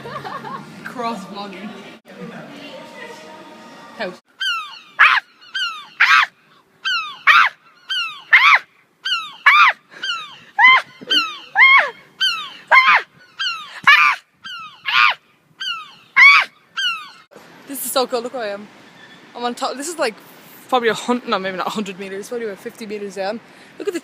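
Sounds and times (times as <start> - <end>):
gulls calling: 4.3 - 17.3.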